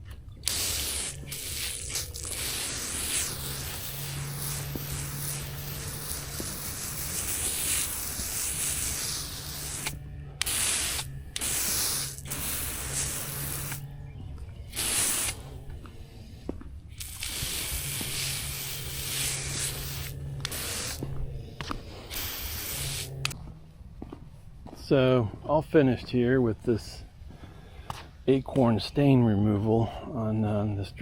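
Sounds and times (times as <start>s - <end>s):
liquid spraying from nozzle: 0.0s - 13.9s, 14.7s - 15.7s, 17.0s - 23.4s
low hum: 0.0s - 28.4s.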